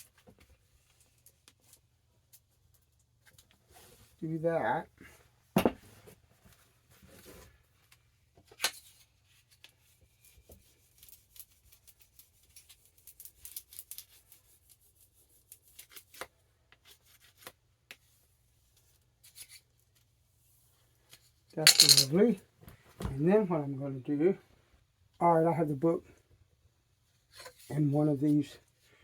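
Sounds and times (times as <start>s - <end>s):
tape crackling and rubbing: 9.3s - 17.6s.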